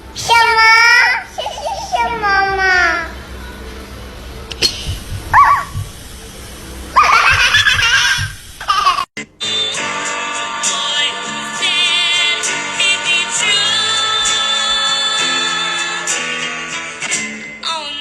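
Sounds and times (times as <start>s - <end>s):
music with singing: 9.2s - 18.0s.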